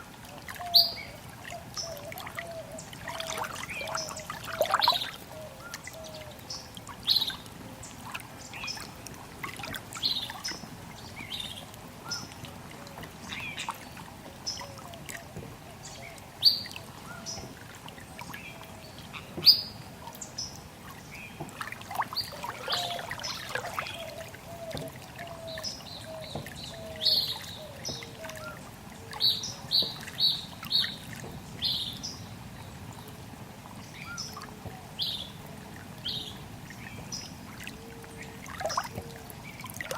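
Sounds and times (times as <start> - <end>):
trickle of water: 0.0 - 39.9
birds chirping: 1.8 - 8.9, 21.1 - 33.0.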